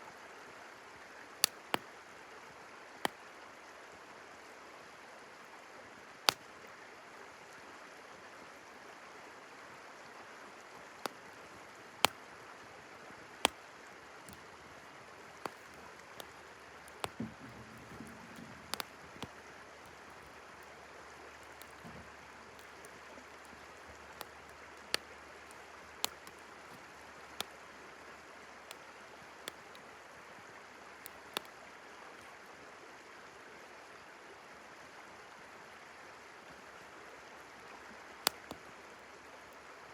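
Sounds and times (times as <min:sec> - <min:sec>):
river flowing: 0:00.0 - 0:39.9
wood fire crackling and popping: 0:01.4 - 0:01.8, 0:12.0 - 0:12.2, 0:13.4 - 0:27.7, 0:28.7 - 0:29.8, 0:31.0 - 0:31.5, 0:38.2 - 0:38.6.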